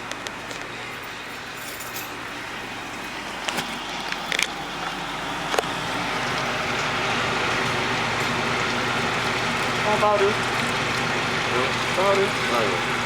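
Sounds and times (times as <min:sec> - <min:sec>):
food sizzling in hot oil: 0:04.6 - 0:13.0.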